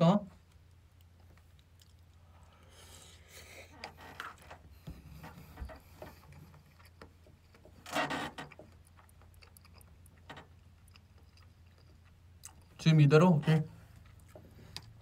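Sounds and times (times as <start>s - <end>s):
person chewing: 0.4s - 3.3s, 8.6s - 12.8s, 13.9s - 15.0s.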